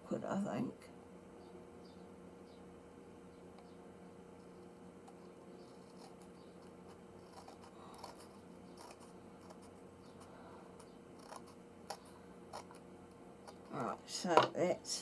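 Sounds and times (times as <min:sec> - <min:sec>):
scissors snipping paper: 0:05.1 - 0:09.8, 0:11.2 - 0:12.9.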